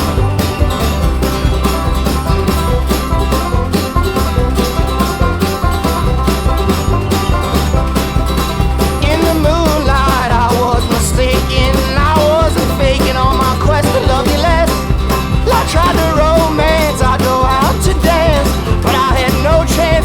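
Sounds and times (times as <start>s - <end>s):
upbeat song with steady beat: 0.0s - 20.0s
sung vocal line: 9.0s - 20.0s.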